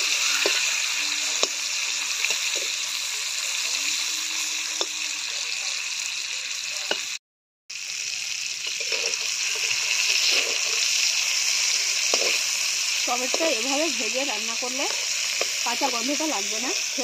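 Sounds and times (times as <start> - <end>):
tomatoes sizzling in hot oil: 0.0 - 17.0
metal spatula scraping pan: 8.7 - 10.9.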